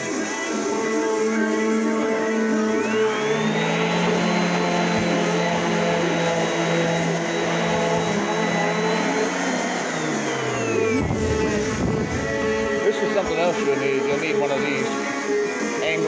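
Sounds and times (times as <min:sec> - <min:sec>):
orbit sander running: 0:00.0 - 0:16.0.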